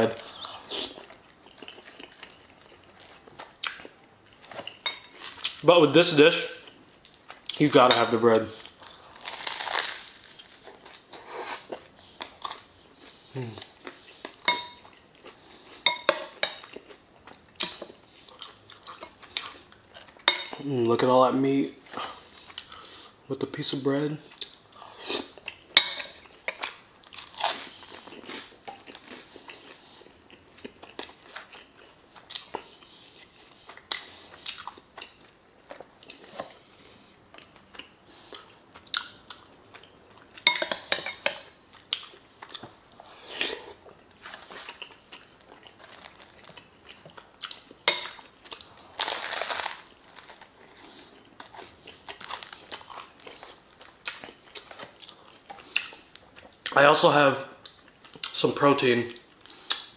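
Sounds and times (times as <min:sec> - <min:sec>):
person chewing and biting food: 0:08.6 - 0:15.8, 0:26.6 - 0:40.4, 0:41.7 - 0:56.8.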